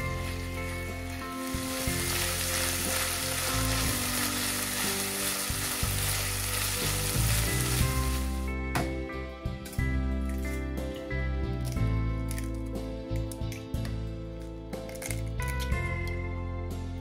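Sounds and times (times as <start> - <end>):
food sizzling in oil: 0.0 - 8.6.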